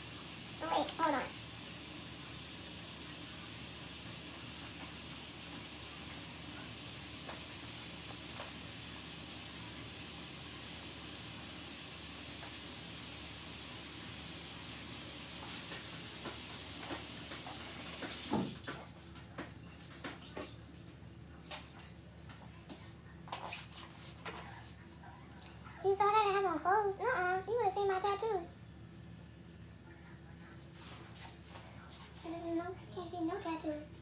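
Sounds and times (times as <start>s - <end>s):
tap water running: 0.0s - 24.5s.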